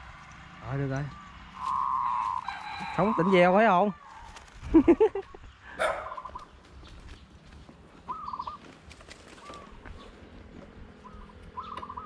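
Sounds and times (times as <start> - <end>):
bird trilling calls: 1.0 - 4.4, 5.1 - 6.6, 8.0 - 8.7, 9.3 - 10.2, 11.0 - 12.0.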